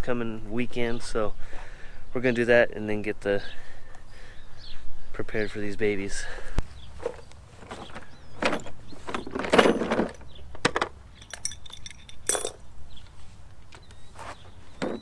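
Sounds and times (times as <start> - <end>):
metal tools clinking and rattling: 7.6 - 12.7, 14.8 - 15.0
jingle of ringing metal: 11.2 - 12.6.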